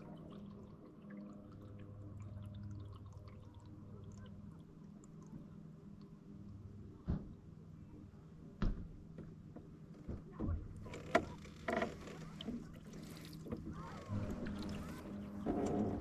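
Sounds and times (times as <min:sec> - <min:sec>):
low hum: 0:10.6 - 0:16.0
paddle strokes in water: 0:10.8 - 0:16.0.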